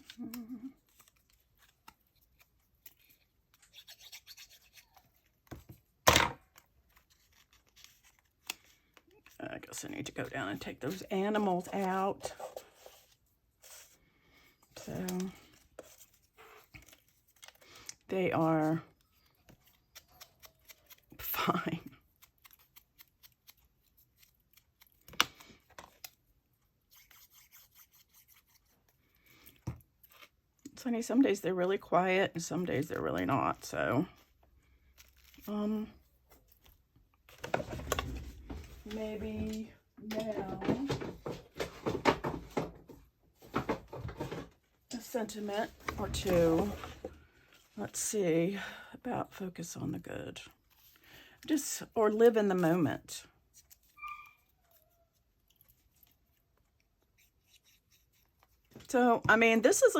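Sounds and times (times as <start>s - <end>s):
paper rustling: 6.5s - 14.0s
scissors snipping: 19.6s - 21.2s.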